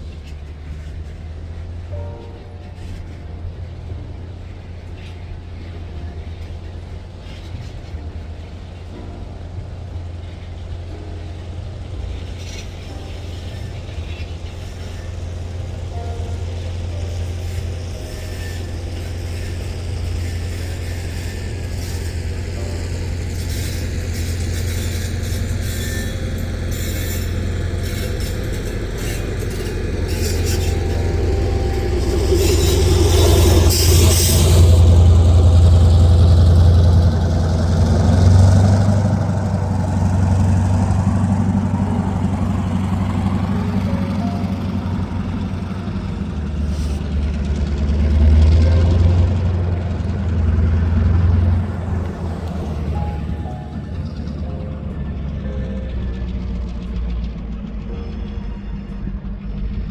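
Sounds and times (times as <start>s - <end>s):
heavy engine low drone: 0.0s - 59.9s.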